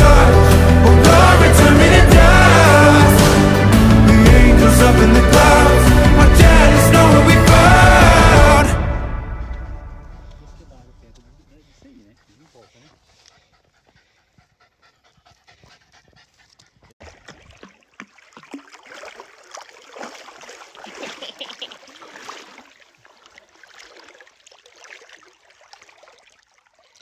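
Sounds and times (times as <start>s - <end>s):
small dog panting: 11.4s - 17.0s.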